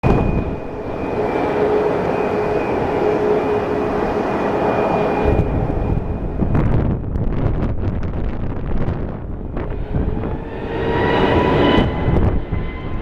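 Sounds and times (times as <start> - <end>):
jet engine roar with whine: 0.0 - 13.0
low rumble: 5.1 - 13.0.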